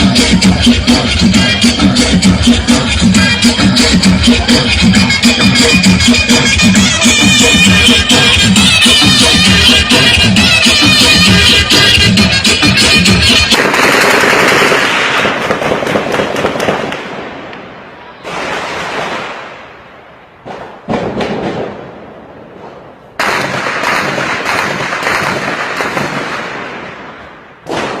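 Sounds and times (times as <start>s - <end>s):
crackling bangs: 13.5s - 28.0s.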